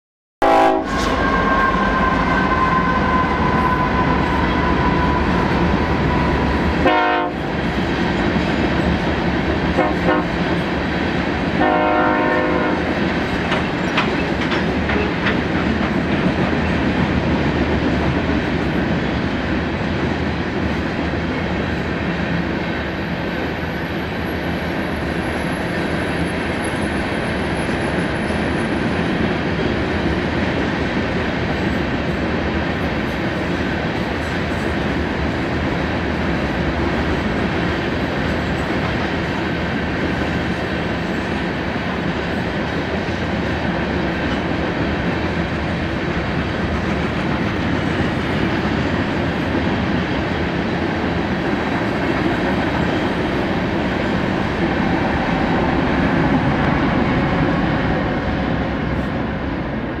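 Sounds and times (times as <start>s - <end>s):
locomotive horn: 0.4s - 7.6s, 9.7s - 10.4s, 11.6s - 13.0s
train wheels rumbling on rail: 0.4s - 60.0s.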